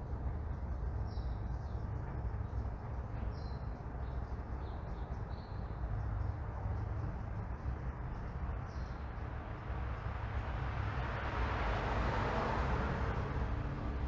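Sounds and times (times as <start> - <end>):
low traffic rumble: 7.2 - 14.0
passing car tyre noise: 9.9 - 14.0.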